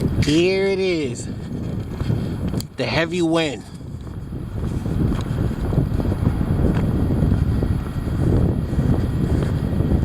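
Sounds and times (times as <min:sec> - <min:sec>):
heavy wind buffeting microphone: 0:00.0 - 0:10.0.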